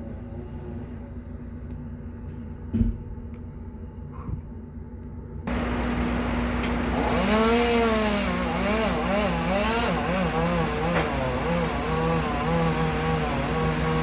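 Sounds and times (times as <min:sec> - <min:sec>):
steady hum: 0:00.0 - 0:10.6
chainsaw cutting tree limb: 0:06.5 - 0:14.0.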